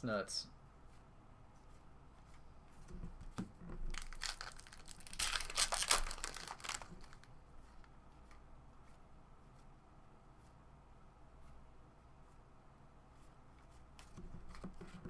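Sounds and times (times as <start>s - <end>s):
foil wrapper tearing and crinkling: 3.9s - 7.3s.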